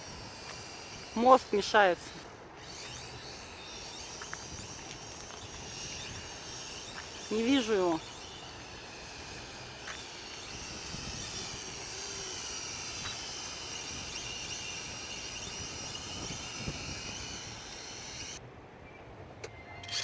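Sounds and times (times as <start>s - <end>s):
drone propellers whining: 0.0s - 18.4s
wind on microphone: 4.2s - 18.4s.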